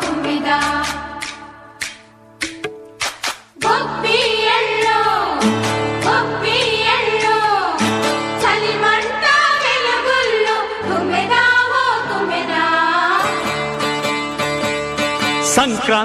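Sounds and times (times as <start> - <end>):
woman singing: 0.0 - 1.2, 3.6 - 5.4, 8.4 - 13.2
instrumental backing: 0.3 - 9.0, 13.2 - 16.0
drum strikes: 0.6 - 3.8.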